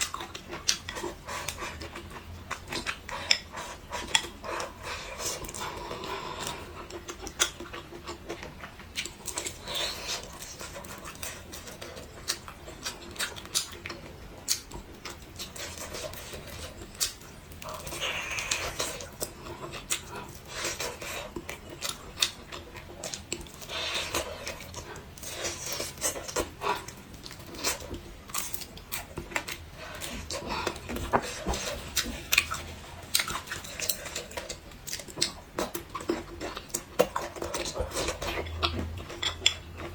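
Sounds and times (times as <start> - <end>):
person chewing and mouth smacking: 0.0 - 39.9.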